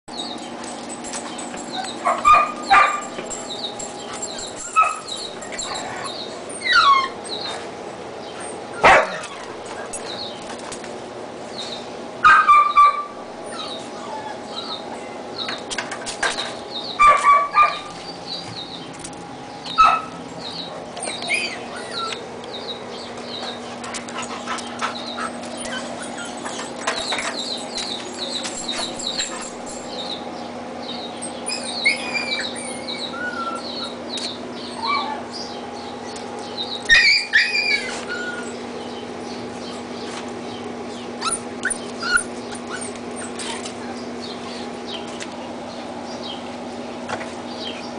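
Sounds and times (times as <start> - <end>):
puppies whimpering and yipping: 0.1 - 7.7, 12.2 - 15.6, 19.7 - 30.3, 30.9 - 40.0, 40.9 - 45.1
puppy yelps: 4.3 - 7.3, 12.2 - 14.8, 17.0 - 17.9, 21.1 - 22.2, 31.3 - 34.0, 34.7 - 35.4, 36.8 - 38.6, 41.2 - 44.6.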